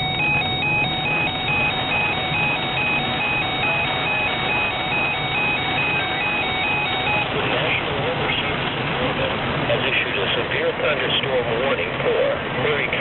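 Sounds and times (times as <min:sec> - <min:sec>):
weather radio electronic alarm: 0:00.0 - 0:07.7
road and rain hiss in car: 0:05.7 - 0:13.0.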